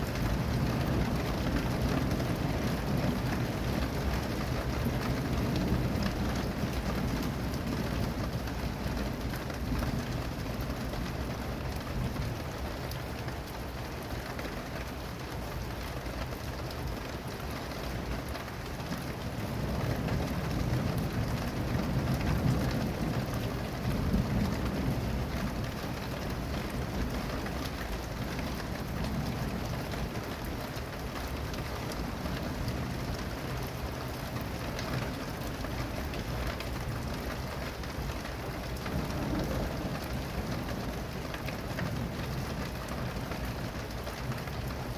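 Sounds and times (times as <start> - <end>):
heavy rain pattering: 0.0 - 44.9
rolling thunder: 38.6 - 43.7.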